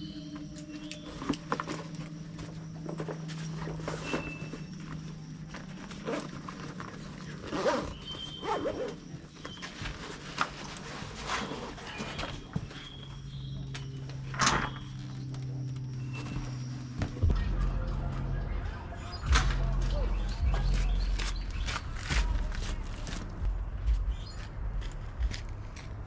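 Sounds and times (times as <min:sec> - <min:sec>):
steady low hum: 0:00.0 - 0:26.0
footsteps: 0:15.2 - 0:26.0.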